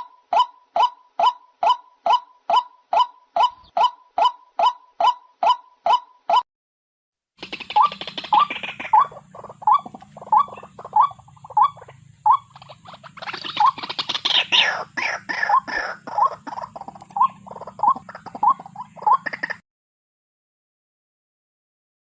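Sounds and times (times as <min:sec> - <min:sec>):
bird calling short rising notes: 0:00.0 - 0:06.4
harsh rasping bird calls: 0:00.0 - 0:06.4, 0:07.4 - 0:19.6.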